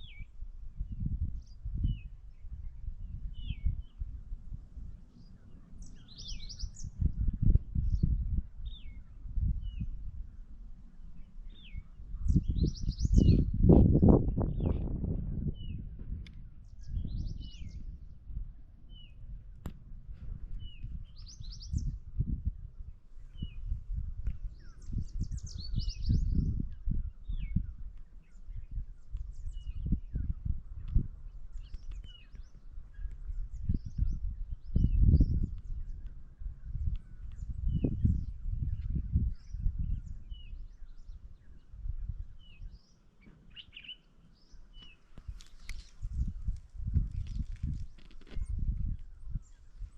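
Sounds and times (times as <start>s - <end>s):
birds singing: 0.0s - 19.4s, 20.2s - 49.9s
low uneven rumble: 0.9s - 42.6s.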